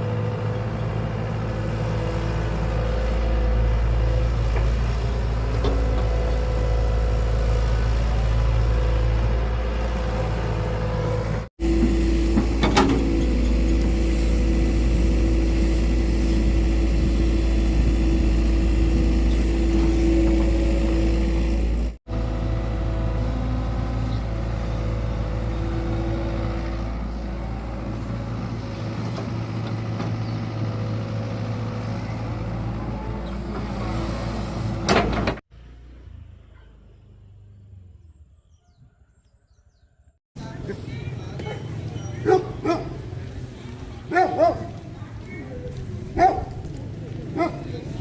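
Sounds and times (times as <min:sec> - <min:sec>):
excavator engine running: 0:00.0 - 0:36.4.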